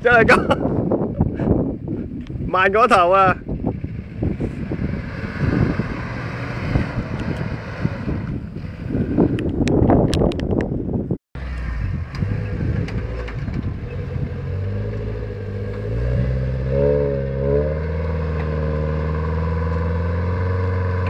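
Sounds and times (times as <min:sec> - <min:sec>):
off-road car engine under load: 0:00.0 - 0:21.0.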